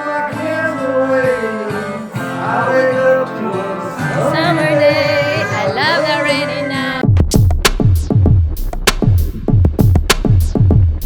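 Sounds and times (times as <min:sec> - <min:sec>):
person singing: 0:00.0 - 0:07.0
guitar accompaniment: 0:00.0 - 0:07.1.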